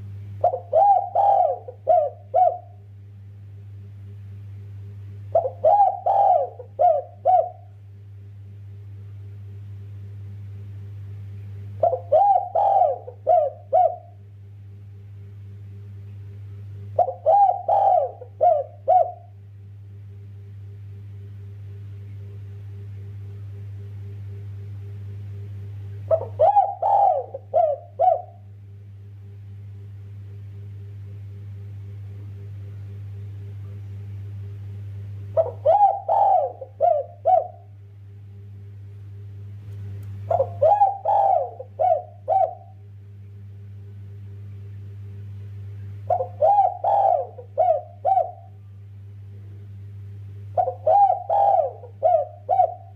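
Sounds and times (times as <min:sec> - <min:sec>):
steady low hum: 0:00.0 - 0:52.9
dove cooing: 0:00.4 - 0:02.8, 0:05.3 - 0:07.8, 0:11.8 - 0:14.2, 0:17.0 - 0:19.4, 0:26.0 - 0:28.5, 0:35.3 - 0:37.8, 0:40.3 - 0:42.8, 0:46.0 - 0:48.6, 0:50.5 - 0:52.9.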